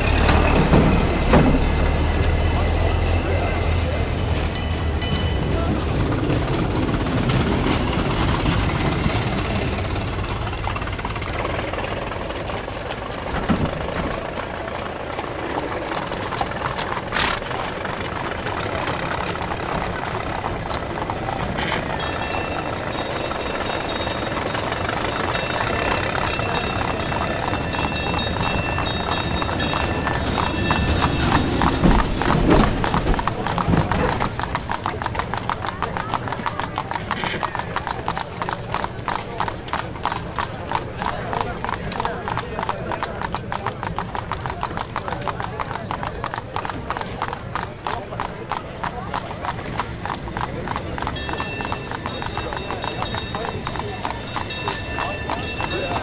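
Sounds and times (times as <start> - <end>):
knocks and clatter: 0.0 - 2.5, 6.1 - 14.6, 20.5 - 35.4
old car engines running: 0.0 - 56.0
streetcar rattling on rails: 0.0 - 56.0.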